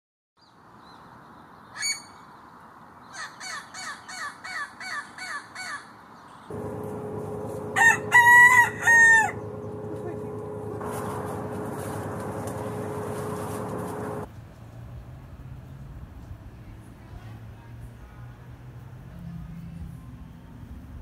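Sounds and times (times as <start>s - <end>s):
steady low hum: 6.5s - 14.3s
rooster crowing: 6.7s - 11.6s.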